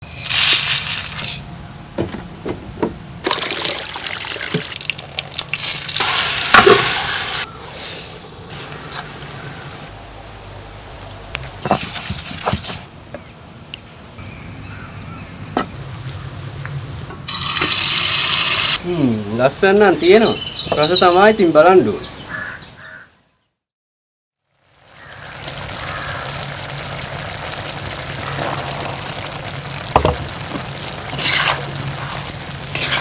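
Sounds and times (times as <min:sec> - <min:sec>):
water pouring and splashing: 0:03.2 - 0:07.5, 0:17.3 - 0:18.8, 0:24.6 - 0:33.0.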